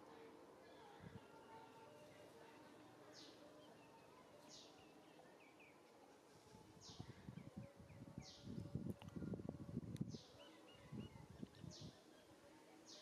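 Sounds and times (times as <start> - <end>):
leaves and branches rustling: 5.6 - 11.9.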